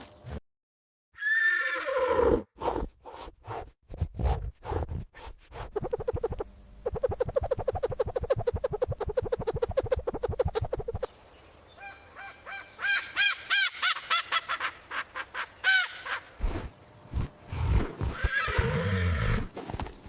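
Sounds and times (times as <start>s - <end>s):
horse whinnying: 1.2s - 2.5s, 18.1s - 19.5s.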